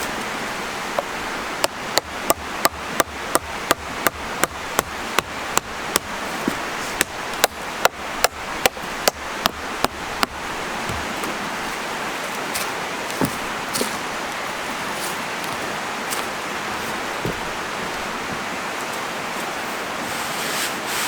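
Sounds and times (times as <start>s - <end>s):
steady rushing noise: 0.0s - 21.0s
tool striking wood: 1.0s - 11.4s, 17.2s - 17.6s.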